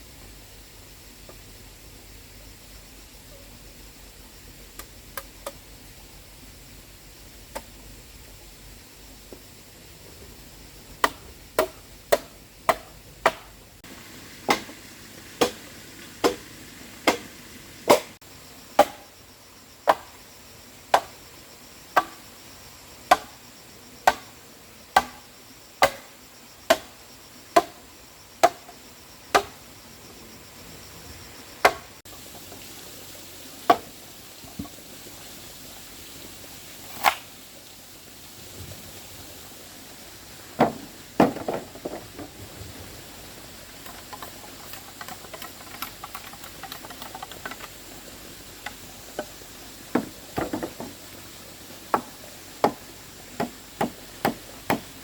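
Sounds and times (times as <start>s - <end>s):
hand tool striking hard material: 11.0s - 13.5s.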